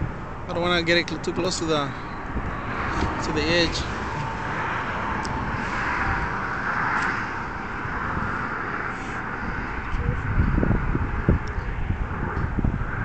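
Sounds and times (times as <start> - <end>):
road traffic rushing: 0.0 - 13.0
wind buffeting microphone: 0.0 - 13.0
vehicle passing: 1.7 - 13.0.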